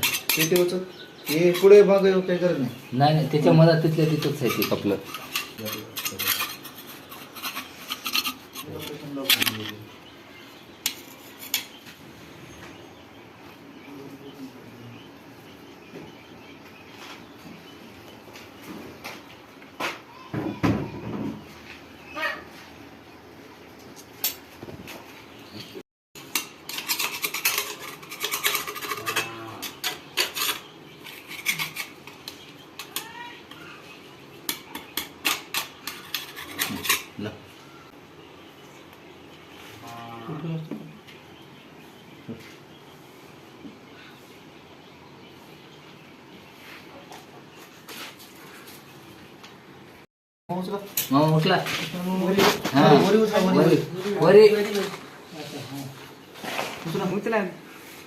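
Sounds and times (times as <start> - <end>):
metal scraping on metal: 0.0 - 2.2, 3.3 - 9.8, 10.8 - 11.8, 26.2 - 33.7, 34.5 - 37.3.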